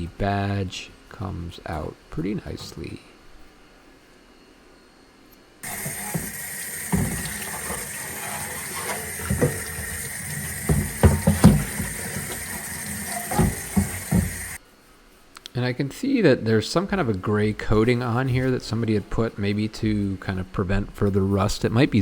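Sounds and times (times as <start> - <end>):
knocks and clunks in sink: 5.6 - 14.6
water running from tap into sink: 5.6 - 14.6.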